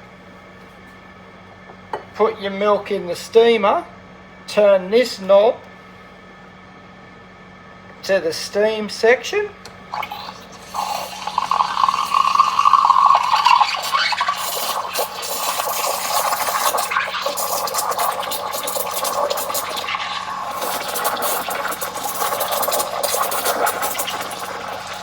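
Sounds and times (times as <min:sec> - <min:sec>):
steam wand frothing milk: 0:10.0 - 0:25.0
crackling spits of steam: 0:10.7 - 0:25.0.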